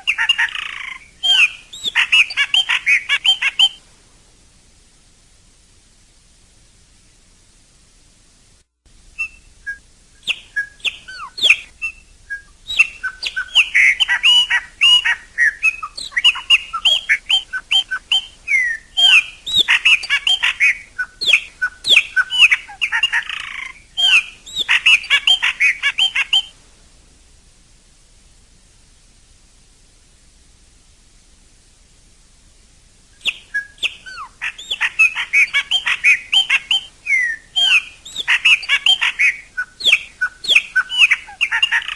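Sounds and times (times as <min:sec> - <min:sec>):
bird rasping call: 0:00.0 - 0:03.8, 0:09.2 - 0:26.5, 0:33.2 - 0:41.9
blackbird singing fluty notes: 0:00.0 - 0:03.8, 0:09.2 - 0:26.5, 0:33.2 - 0:41.9.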